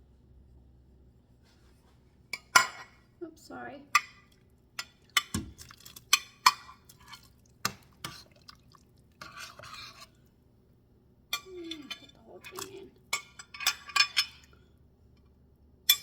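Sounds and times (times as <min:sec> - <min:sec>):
spoon scraping while stirring: 0:04.8 - 0:10.3
spoon clinking against pot: 0:11.3 - 0:14.5.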